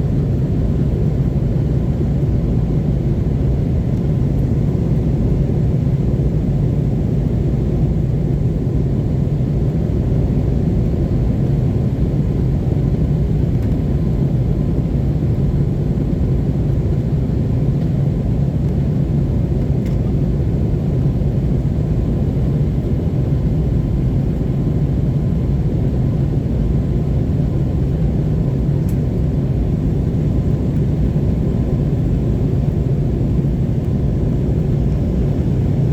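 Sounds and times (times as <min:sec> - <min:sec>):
jet cabin engine rumble: 0:00.0 - 0:35.9.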